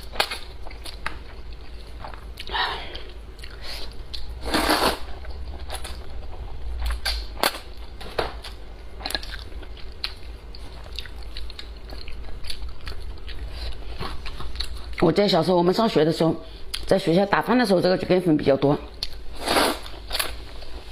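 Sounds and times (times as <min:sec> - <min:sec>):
person slurping and chewing noodles: 0:00.7 - 0:06.1, 0:19.1 - 0:20.9.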